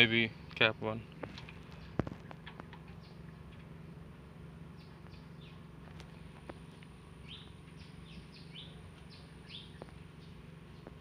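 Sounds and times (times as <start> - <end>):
steady low hum: 0.0 - 11.0
small bird chirping: 1.6 - 3.6, 4.7 - 11.0.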